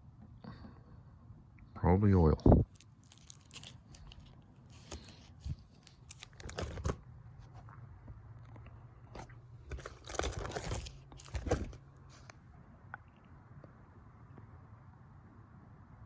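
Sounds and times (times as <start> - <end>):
crinkling and crunching: 2.6 - 12.4.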